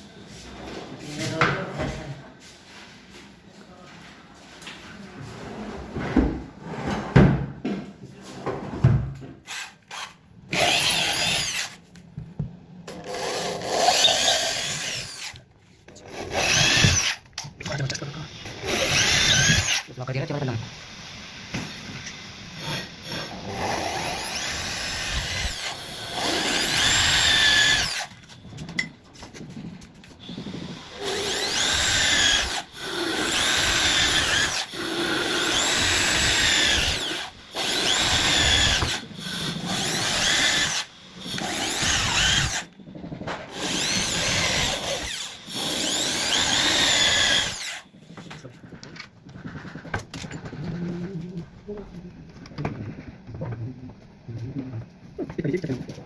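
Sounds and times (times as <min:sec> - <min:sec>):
electric drill motor whirring: 0:09.4 - 0:11.8, 0:13.0 - 0:15.4, 0:16.1 - 0:17.3, 0:18.2 - 0:19.9, 0:20.6 - 0:28.4, 0:30.2 - 0:42.8, 0:43.5 - 0:48.4.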